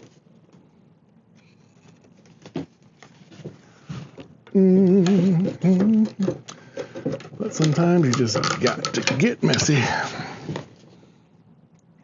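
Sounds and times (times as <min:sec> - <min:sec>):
man humming: 0:04.5 - 0:06.4.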